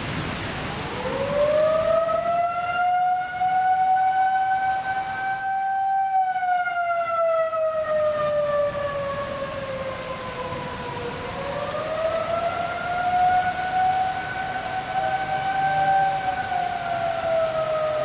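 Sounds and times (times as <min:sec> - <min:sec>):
steady rain: 0:00.0 - 0:18.0
warning siren: 0:00.2 - 0:18.0.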